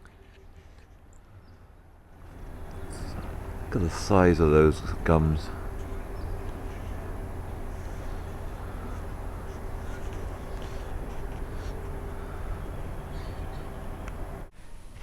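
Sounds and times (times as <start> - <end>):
outdoor background rumble: 0.0 - 14.5
faint bird calls: 5.5 - 14.4.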